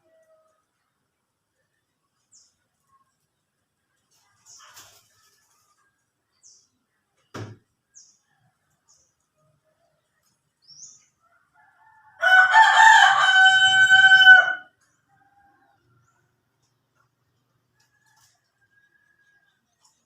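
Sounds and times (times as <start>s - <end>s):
rooster crowing: 11.3s - 15.6s.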